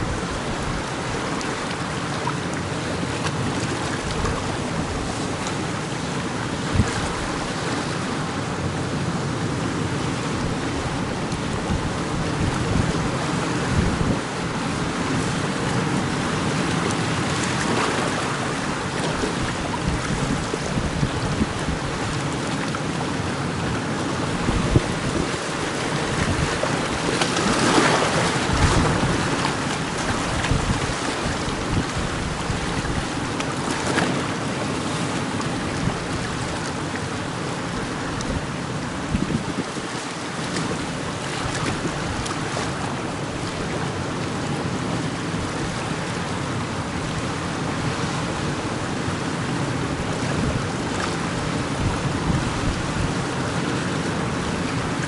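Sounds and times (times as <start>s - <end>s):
sea surf rushing: 0.0s - 55.0s
waves breaking: 0.0s - 55.0s
wind buffeting microphone: 6.6s - 7.6s, 10.4s - 15.6s, 17.7s - 22.4s, 24.1s - 33.8s, 37.7s - 40.0s, 49.8s - 53.8s.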